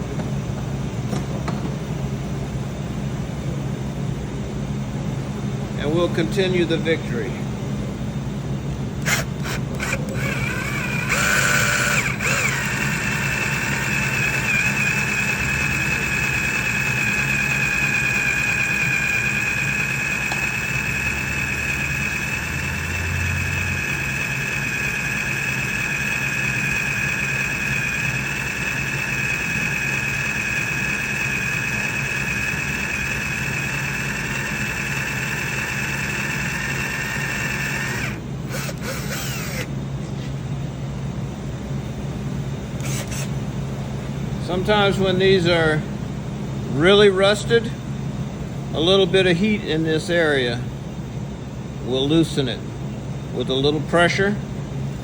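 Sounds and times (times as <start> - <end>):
drill whining into metal: 9.0 - 39.7, 42.8 - 43.3.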